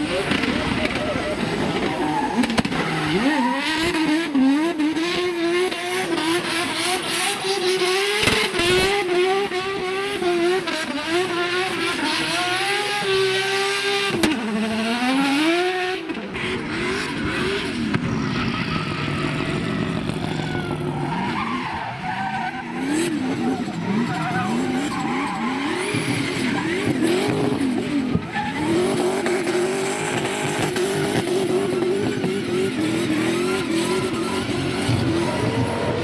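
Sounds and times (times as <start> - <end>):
car engine revving hard: 0.0 - 36.0
tyres squealing: 18.3 - 26.8.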